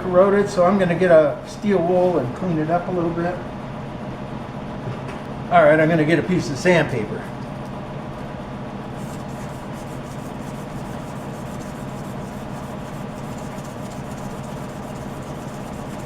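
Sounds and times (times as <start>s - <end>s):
sandpaper rasping on metal rod: 9.0s - 16.0s.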